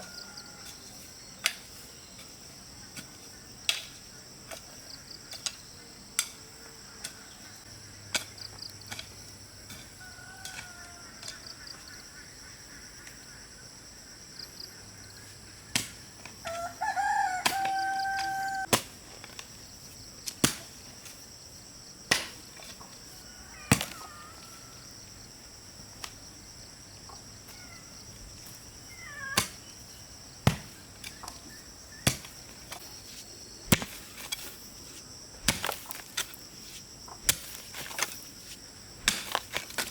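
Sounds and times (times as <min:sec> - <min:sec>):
rooster crowing: 0:00.0 - 0:00.6, 0:09.9 - 0:11.5, 0:16.4 - 0:18.7, 0:23.2 - 0:25.0
high insect drone: 0:00.0 - 0:18.7, 0:19.4 - 0:39.9
sharp chopping strikes: 0:15.7 - 0:16.0, 0:20.3 - 0:20.7, 0:22.1 - 0:22.4, 0:23.7 - 0:24.0, 0:29.4 - 0:29.6, 0:30.4 - 0:30.8, 0:32.0 - 0:32.8, 0:33.6 - 0:34.1, 0:35.4 - 0:36.4, 0:37.2 - 0:38.0, 0:39.0 - 0:39.9.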